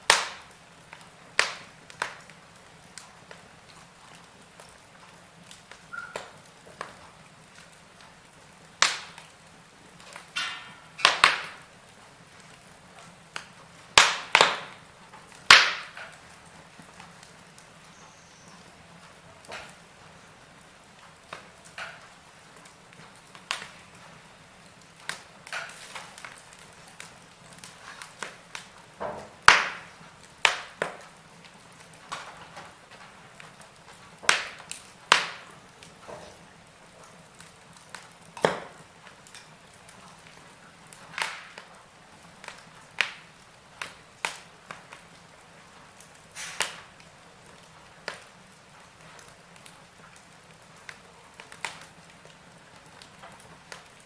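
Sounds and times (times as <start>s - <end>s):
faint steady hiss: 0.0s - 54.0s
wood fire popping and snapping: 0.0s - 54.0s.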